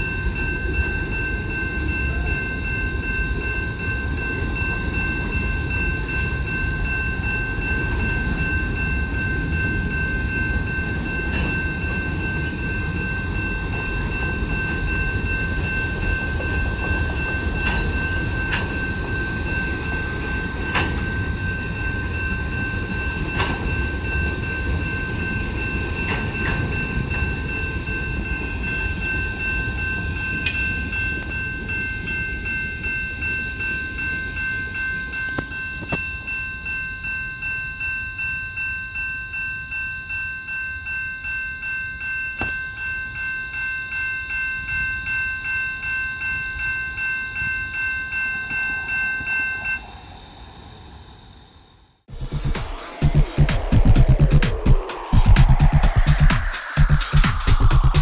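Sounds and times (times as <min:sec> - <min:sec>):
freight train rumbling: 0:00.0 - 0:38.6, 0:46.0 - 0:58.0
crossing warning bell: 0:00.0 - 0:52.1
wheels clanking over rail joints: 0:10.5 - 0:31.7.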